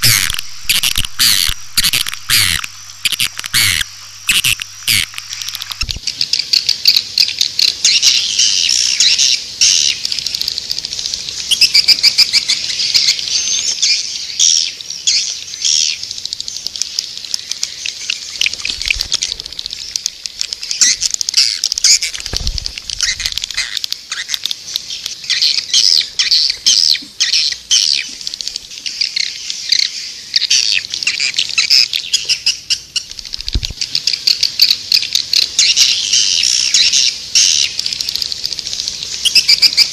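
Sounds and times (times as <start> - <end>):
quick clicks: 0.0 - 6.0, 18.4 - 25.2
swiftlets twittering: 0.0 - 6.0.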